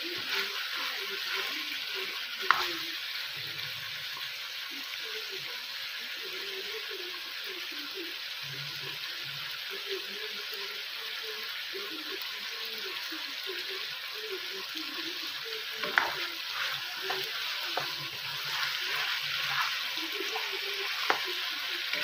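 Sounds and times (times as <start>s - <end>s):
meat sizzling in a frying pan: 0.0s - 22.0s
spatula scraping and knocking pan: 2.4s - 2.8s, 15.8s - 22.0s.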